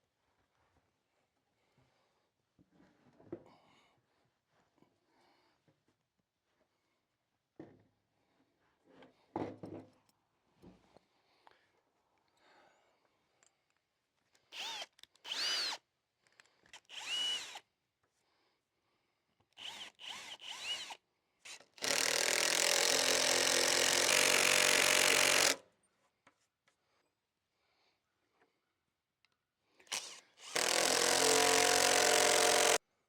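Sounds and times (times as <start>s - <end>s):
power drill motor whining: 14.5s - 15.8s, 16.7s - 17.6s, 19.6s - 25.6s, 29.9s - 32.8s.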